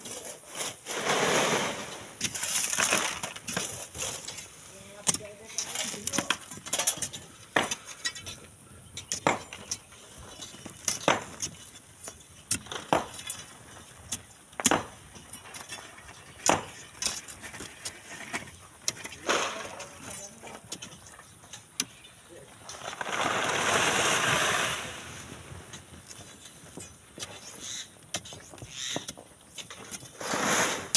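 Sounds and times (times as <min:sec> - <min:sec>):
tools scraping sand: 0:00.0 - 0:30.9
metal tools striking stones: 0:09.0 - 0:11.6.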